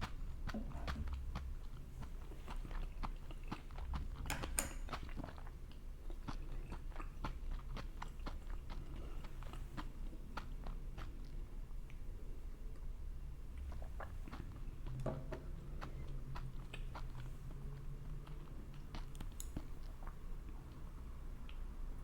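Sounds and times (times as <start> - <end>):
chewing and biting food: 0.0 - 4.3, 4.9 - 12.0, 13.5 - 21.8.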